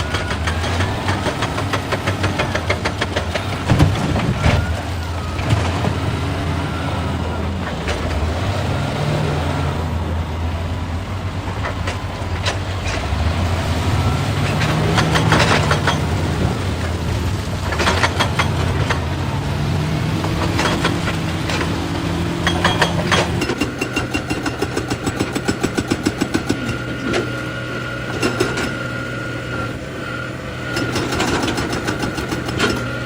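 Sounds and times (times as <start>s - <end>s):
excavator clattering: 0.0s - 8.8s, 11.0s - 33.0s
excavator diesel engine running: 0.0s - 33.0s.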